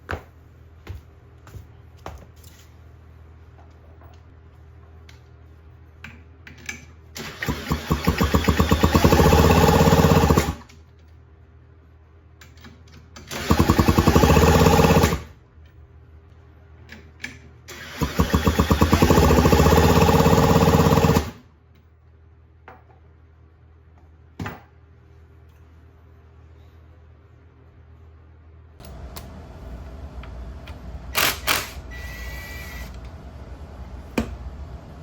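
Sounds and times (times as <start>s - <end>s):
scooter electric starter cranking: 7.2s - 10.6s, 13.4s - 15.3s, 17.8s - 21.4s.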